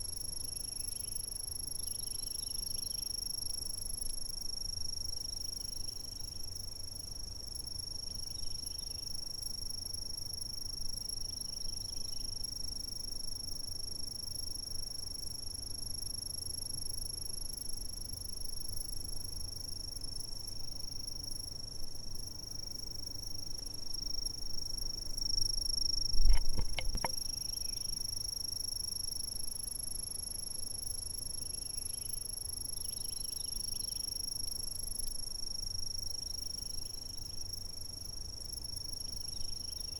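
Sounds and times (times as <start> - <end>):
insects trilling: 22.2 - 29.7, 30.3 - 35.1.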